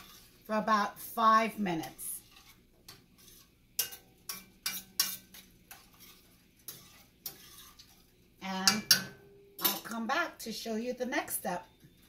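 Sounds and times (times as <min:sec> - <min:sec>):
utensil tapping a pan: 0:03.8 - 0:05.8, 0:08.6 - 0:10.0.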